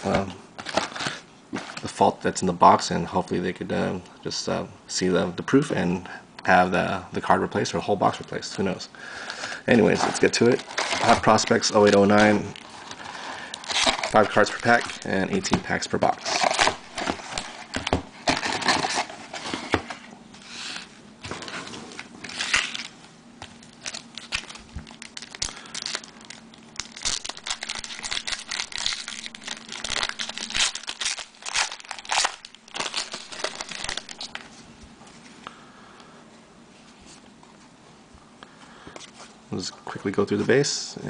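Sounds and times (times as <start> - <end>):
plastic wrapping tearing and crinkling: 9.8 - 19.2, 21.9 - 22.9, 23.7 - 34.5.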